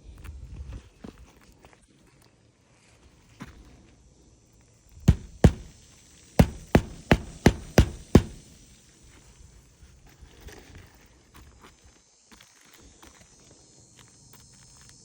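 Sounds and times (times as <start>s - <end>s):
hammer striking roof: 5.1s - 5.8s, 6.4s - 8.6s.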